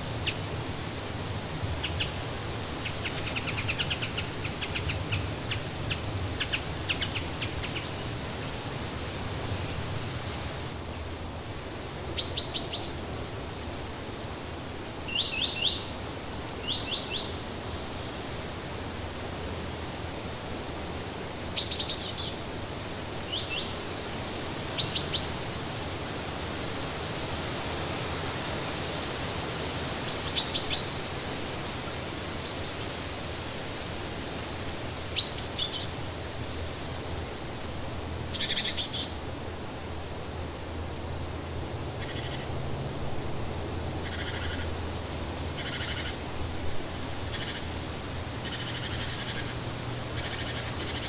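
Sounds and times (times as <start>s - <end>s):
songbirds chirping: 0.0s - 11.3s, 11.9s - 25.5s, 34.9s - 39.8s
steady hiss: 0.0s - 51.0s.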